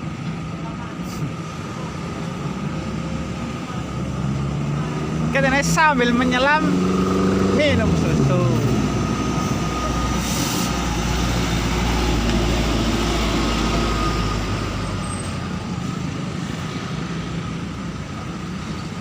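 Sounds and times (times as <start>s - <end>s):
diesel excavator engines: 0.0s - 19.0s.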